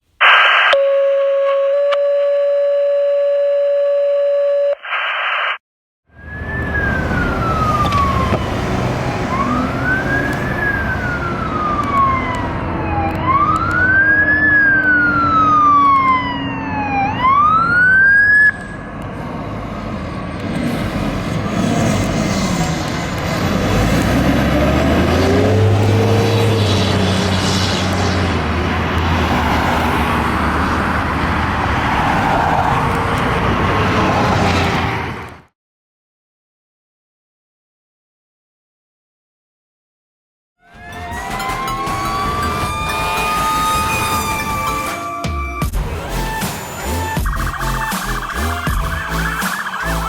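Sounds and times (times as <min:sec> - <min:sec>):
wailing siren: 0:00.2 - 0:04.7, 0:06.1 - 0:19.1, 0:20.0 - 0:35.0, 0:40.6 - 0:50.0
higher siren: 0:00.2 - 0:19.0, 0:40.6 - 0:50.0
truck engine and road rumble: 0:06.2 - 0:35.5, 0:40.6 - 0:50.0.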